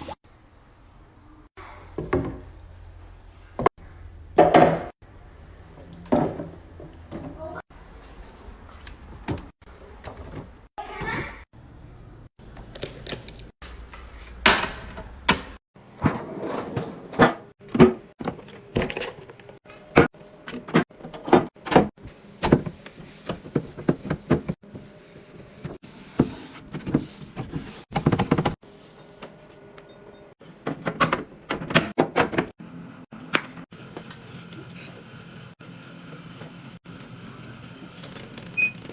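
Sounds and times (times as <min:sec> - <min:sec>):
containers clunking and knocking: 0:05.8 - 0:07.6, 0:14.4 - 0:24.6.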